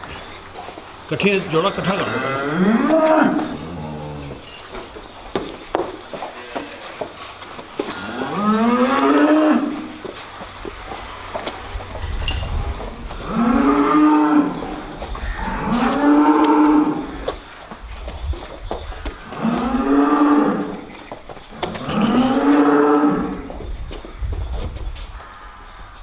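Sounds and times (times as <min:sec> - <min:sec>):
steady high-pitched hiss: 0:00.0 - 0:26.0
cows mooing: 0:01.6 - 0:04.9, 0:06.3 - 0:17.7, 0:18.7 - 0:23.7.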